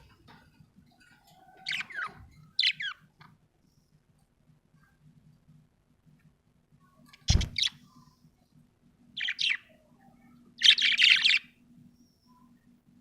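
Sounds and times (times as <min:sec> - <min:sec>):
budgerigar chirping: 0:01.6 - 0:03.0, 0:09.2 - 0:09.7, 0:10.6 - 0:11.5.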